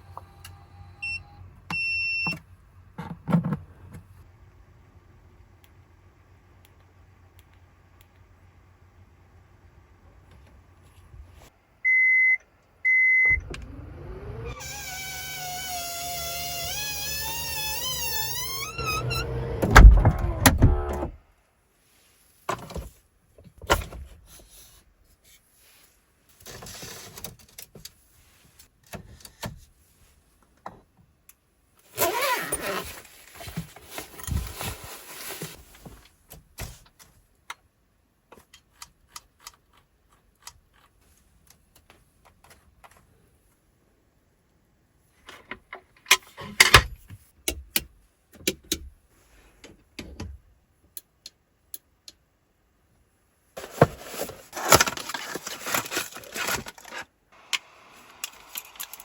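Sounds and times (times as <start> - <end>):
short warning beeps: 11.9 - 13.4
door motor whining: 13.3 - 21.2.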